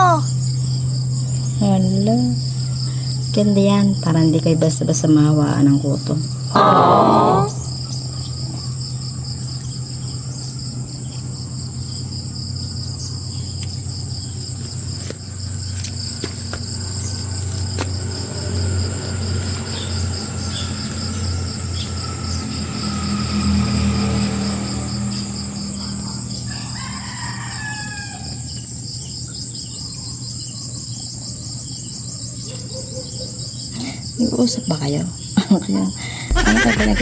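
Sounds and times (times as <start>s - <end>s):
crickets chirping: 0.0s - 37.0s
low steady hum: 36.3s - 37.0s.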